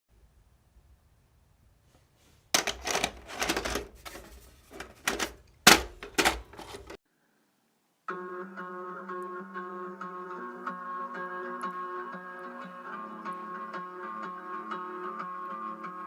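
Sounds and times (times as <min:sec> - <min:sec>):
objects clattering and knocking: 0:02.6 - 0:07.0
music: 0:08.1 - 0:16.0.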